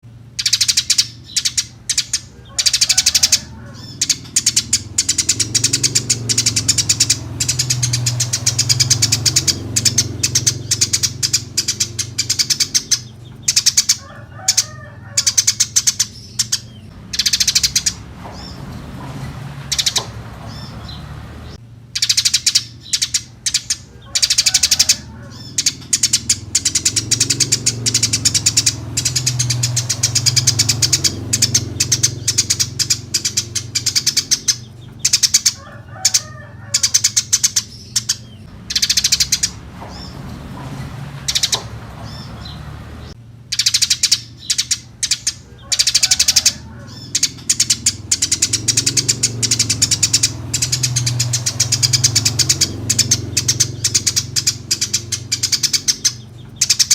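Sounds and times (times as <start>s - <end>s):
sparrows chirping: 0.0s - 56.9s.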